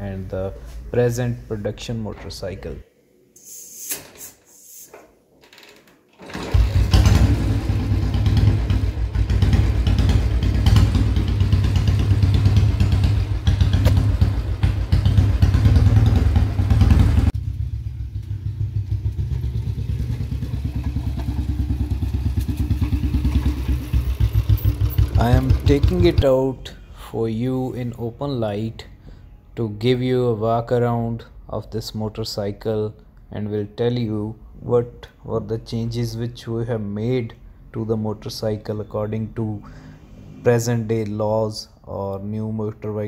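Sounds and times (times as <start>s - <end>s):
motorcycle engine starting and idling: 6.2s - 26.4s.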